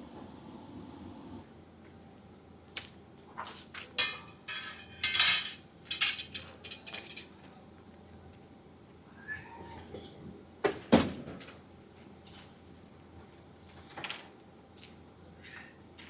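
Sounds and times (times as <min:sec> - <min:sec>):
crockery and cutlery clattering: 0:03.9 - 0:07.3.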